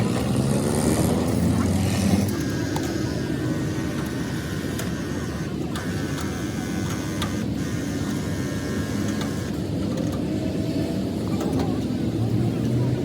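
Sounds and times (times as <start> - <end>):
engine running: 0.0 - 13.0
thin steady whine: 1.2 - 9.8.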